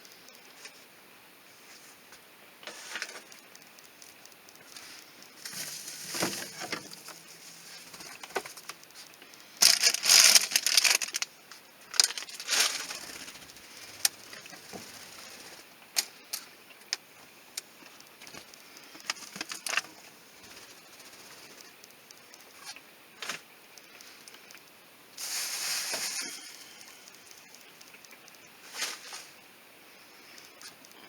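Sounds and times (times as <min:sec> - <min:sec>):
containers clicking and knocking: 0:09.6 - 0:11.3, 0:11.9 - 0:13.1
packaging rustling: 0:09.6 - 0:11.3, 0:11.9 - 0:13.4, 0:19.1 - 0:19.9.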